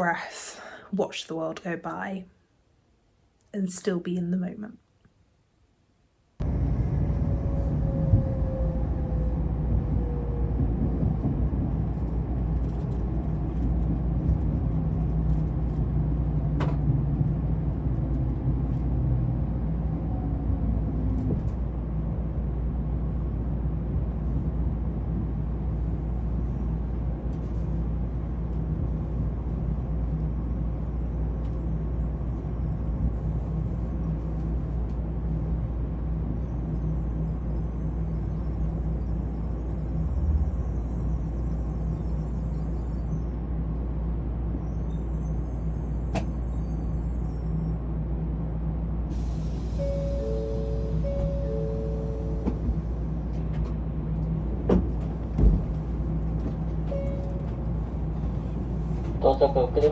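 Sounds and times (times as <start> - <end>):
falling whine: 6.4 - 11.3
train rumbling: 6.4 - 59.9.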